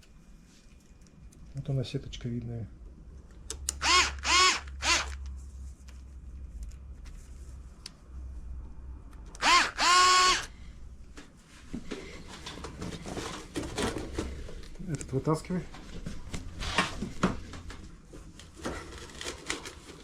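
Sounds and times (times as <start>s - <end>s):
cordless drill whining: 3.7s - 5.2s, 9.4s - 10.6s
scraping and handling noise: 11.0s - 20.0s.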